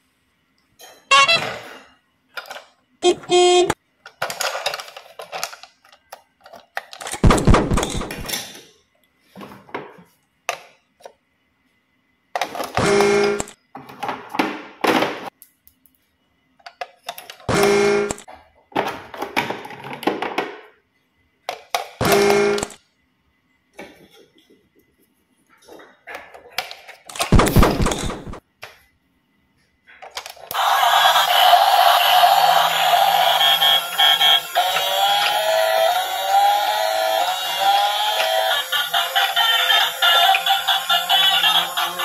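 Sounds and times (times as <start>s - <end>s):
short sound effects: 7.2s - 8.3s, 27.3s - 28.4s.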